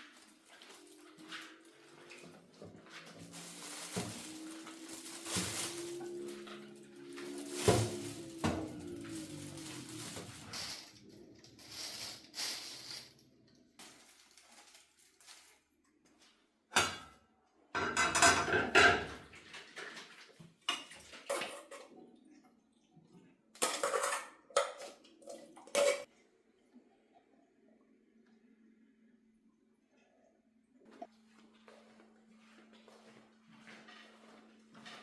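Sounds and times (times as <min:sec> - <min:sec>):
dishes and cutlery clinking: 0:17.8 - 0:19.2, 0:23.6 - 0:25.0.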